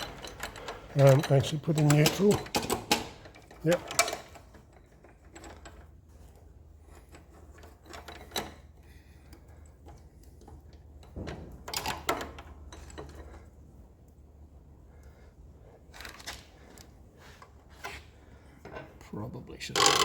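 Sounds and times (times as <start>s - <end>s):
tools being handled: 0.0s - 13.5s
metallic clicks of drive chain: 0.0s - 14.2s, 19.7s - 20.0s.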